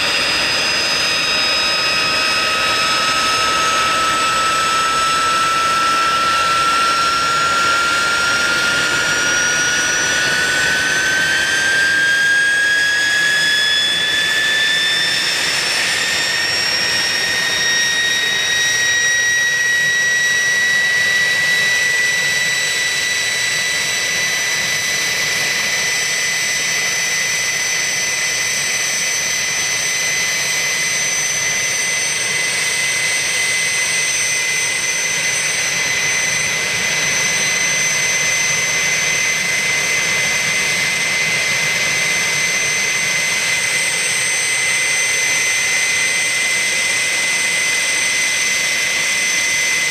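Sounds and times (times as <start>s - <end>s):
jet turbine engine whine: 0.0s - 49.9s.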